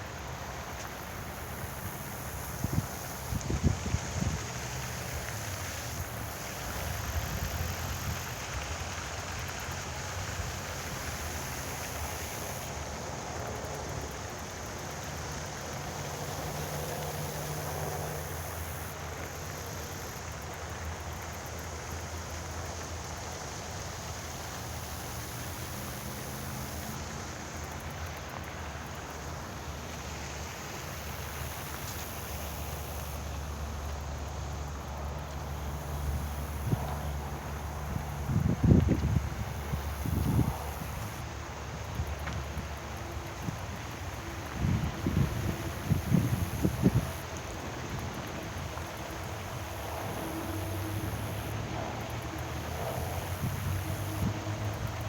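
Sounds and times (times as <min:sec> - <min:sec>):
wind rumble on microphone: 0:02.6 - 0:04.6, 0:36.1 - 0:52.0.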